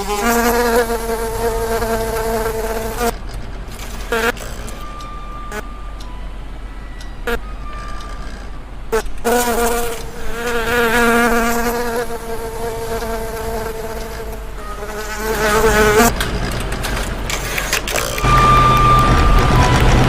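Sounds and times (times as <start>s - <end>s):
buzzing drone: 7.2s - 16.3s.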